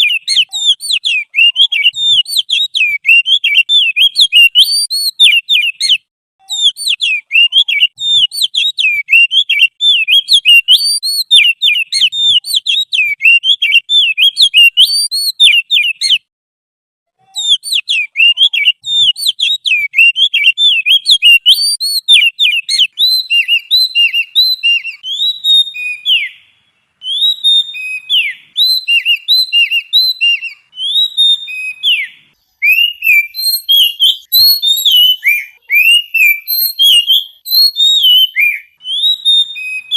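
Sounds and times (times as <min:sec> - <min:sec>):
songbird chattering song: 0:00.0 - 0:16.2, 0:17.4 - 0:39.9
sharp falling whistled notes: 0:27.0 - 0:39.9.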